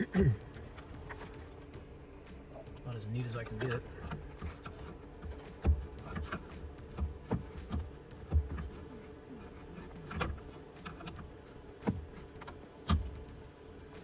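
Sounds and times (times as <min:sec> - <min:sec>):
faint steady hum: 0:00.0 - 0:14.0
clicks and knocks of car radio: 0:02.6 - 0:09.0, 0:09.8 - 0:13.4.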